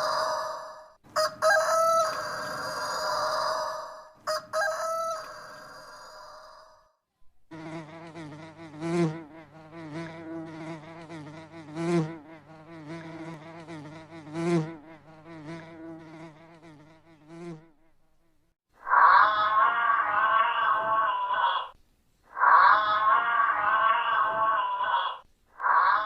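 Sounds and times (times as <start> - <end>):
bee buzzing: 7.5 - 18.4.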